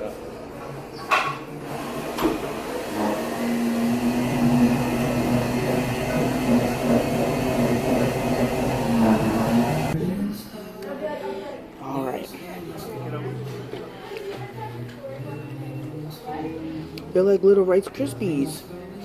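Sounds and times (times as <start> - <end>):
steady motor hum: 1.6 - 10.0.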